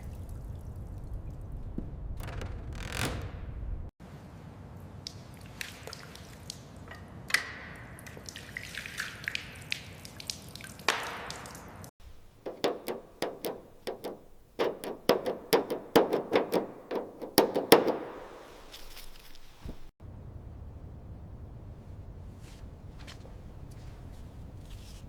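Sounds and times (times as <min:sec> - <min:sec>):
tool clicks and taps: 0:12.0 - 0:18.5.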